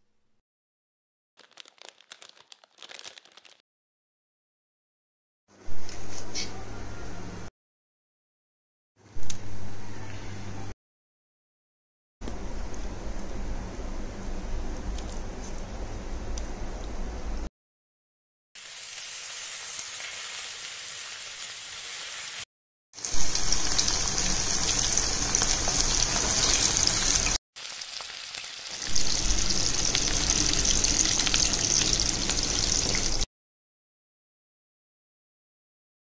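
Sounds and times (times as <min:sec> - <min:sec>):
chicken deep-frying in oil: 0:18.6 - 0:33.3.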